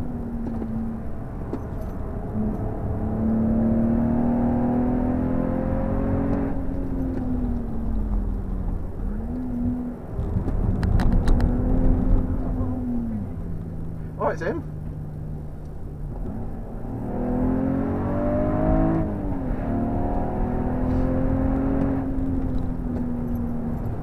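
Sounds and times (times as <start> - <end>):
car engine under load: 0.0 - 24.0
tyre and road noise: 0.0 - 24.0.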